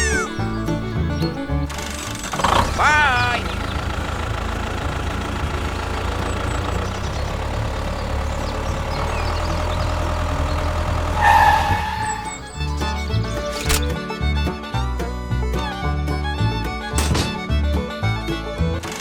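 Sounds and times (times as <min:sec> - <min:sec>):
tractor engine idling: 0:00.0 - 0:14.0.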